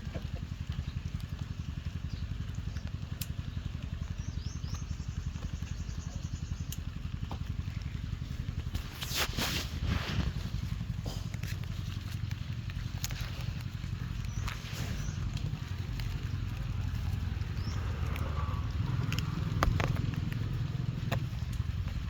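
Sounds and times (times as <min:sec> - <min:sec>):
small engine running: 0:00.0 - 0:22.0
brief rustle: 0:08.7 - 0:10.7.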